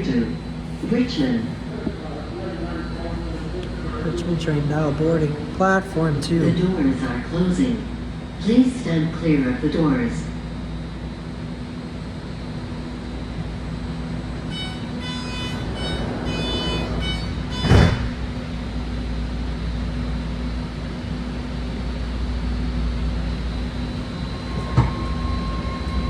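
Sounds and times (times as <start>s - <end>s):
train doors shutting thud: 0.0s - 3.8s, 14.4s - 19.0s, 23.6s - 26.0s
train car low hum: 0.0s - 26.0s.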